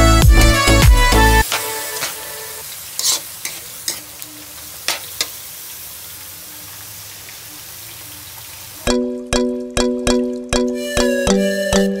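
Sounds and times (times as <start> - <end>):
vegetables sizzling in a wok: 0.0 - 9.1
spatula scraping and knocking pan: 3.0 - 4.0.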